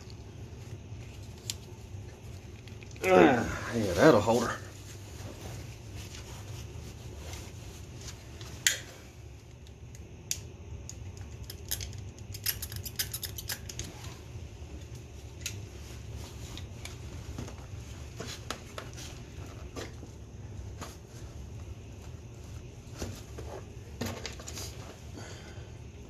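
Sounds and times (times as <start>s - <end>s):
steady low hum: 0.0s - 26.0s
hand tools clicking and tapping: 10.9s - 13.9s.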